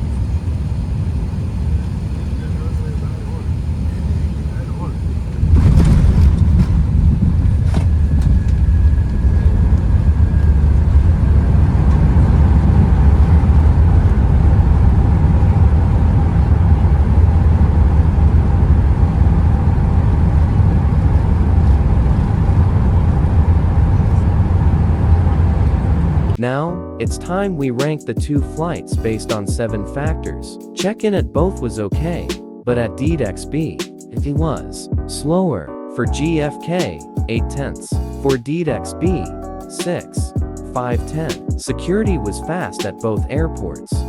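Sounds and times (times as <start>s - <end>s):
aircraft landing jolt: 0.0s - 26.4s
heavy rumble of aircraft rolling: 0.0s - 26.4s.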